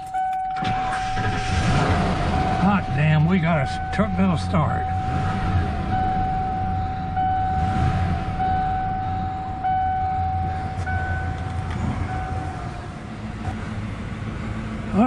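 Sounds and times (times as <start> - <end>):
car engine idling: 0.0 - 15.0
pulsing high tone: 2.2 - 13.0.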